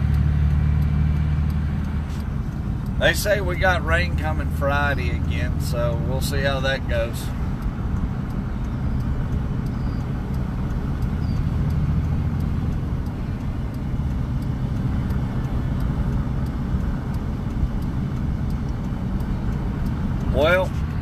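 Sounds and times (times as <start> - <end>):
farm vehicle engine rumble: 0.0 - 21.0.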